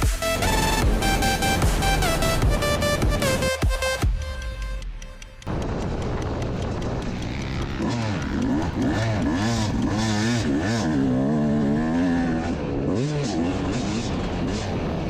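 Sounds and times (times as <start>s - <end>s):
dirt bike engine revving: 5.5s - 15.0s.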